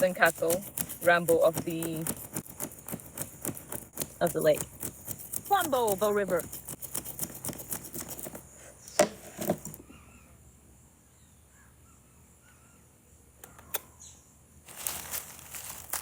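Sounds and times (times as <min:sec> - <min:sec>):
faint bird calling: 0:09.7 - 0:14.3.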